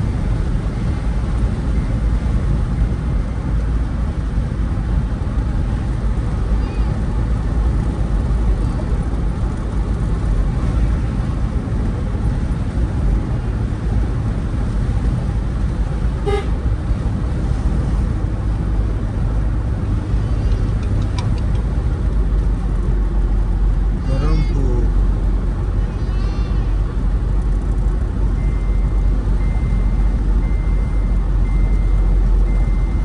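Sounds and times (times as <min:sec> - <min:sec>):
vehicle driving rumble: 0:00.0 - 0:33.0
short horn toot: 0:16.2 - 0:16.6.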